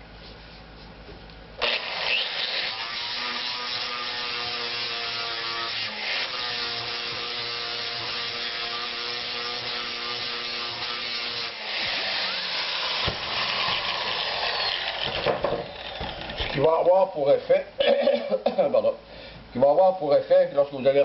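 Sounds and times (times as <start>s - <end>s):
rotary buffer sanding metal: 1.6s - 14.7s.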